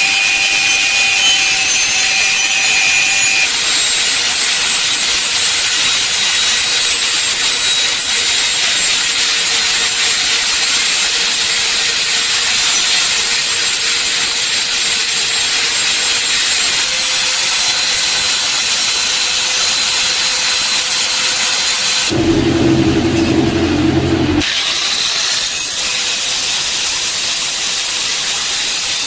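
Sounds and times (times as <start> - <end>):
power tool hissing: 22.1 - 24.4.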